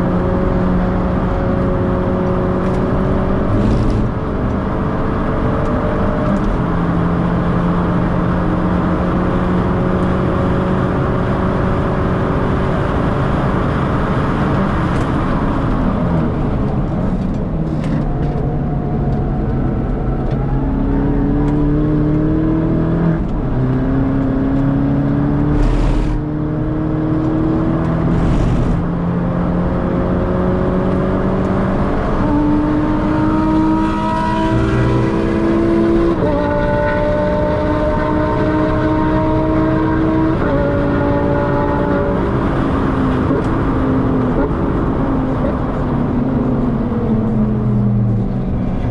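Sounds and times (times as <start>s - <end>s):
car engine accelerating: 0.0s - 48.9s
tyre and wind noise: 25.4s - 29.4s.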